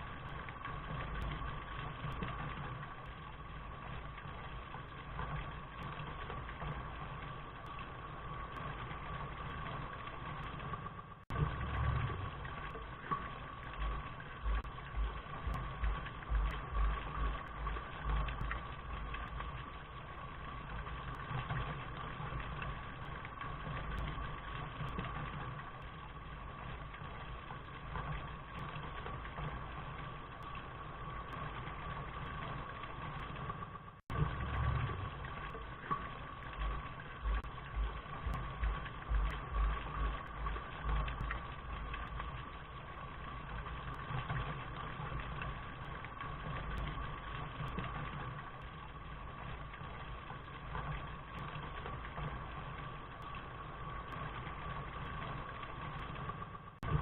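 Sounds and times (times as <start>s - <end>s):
faint hum: 0.0s - 57.0s
low uneven rumble: 0.0s - 57.0s
steady rain: 0.0s - 57.0s.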